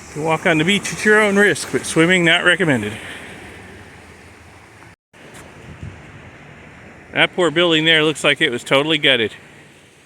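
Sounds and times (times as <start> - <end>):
surf washing on beach: 0.0 - 10.0
wind on microphone: 5.5 - 6.9.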